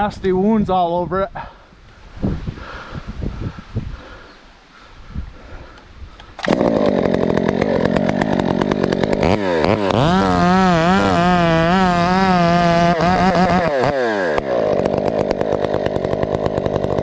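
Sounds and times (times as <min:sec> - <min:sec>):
chainsaw revving: 0:06.3 - 0:17.0.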